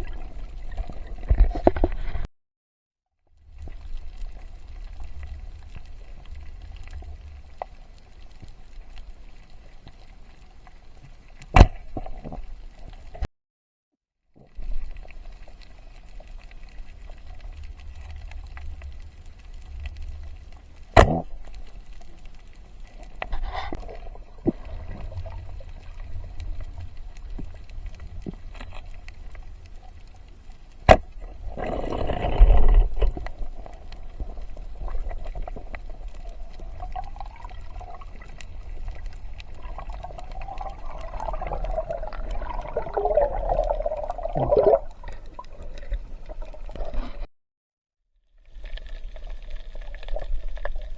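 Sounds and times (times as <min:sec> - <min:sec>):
water sloshing and gurgling: 0:00.0 - 0:02.3, 0:03.4 - 0:13.3, 0:14.4 - 0:47.3, 0:48.4 - 0:50.9
rush of water: 0:23.3 - 0:47.3.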